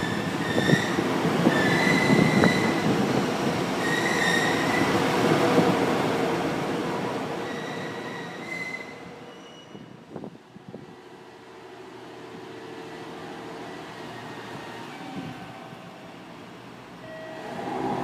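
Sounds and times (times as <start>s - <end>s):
train wheels squealing: 0.0s - 5.0s, 7.4s - 10.0s.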